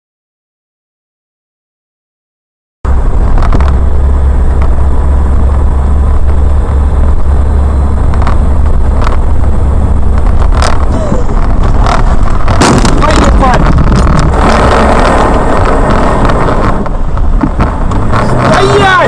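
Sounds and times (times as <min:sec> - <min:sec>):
engine and road rumble: 0:02.8 - 0:19.0.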